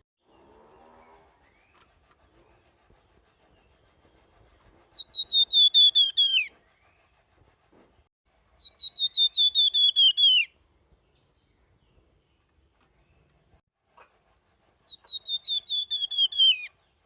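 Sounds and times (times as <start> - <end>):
songbird whistled song: 3.4 - 7.1, 8.6 - 13.3, 14.8 - 17.0.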